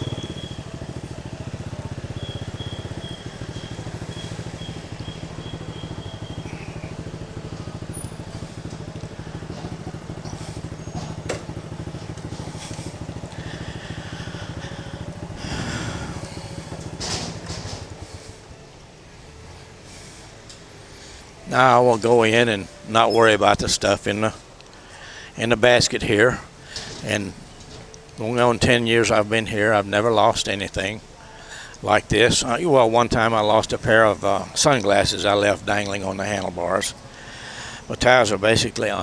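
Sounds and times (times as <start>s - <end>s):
high-pitched beeping: 0.0s - 8.6s
motorcycle engine running: 0.0s - 39.0s.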